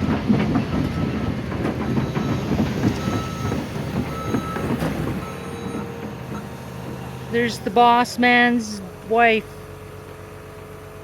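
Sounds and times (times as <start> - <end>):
steel clanking and rattling: 0.0 - 8.1
excavator engine hum: 0.0 - 11.0.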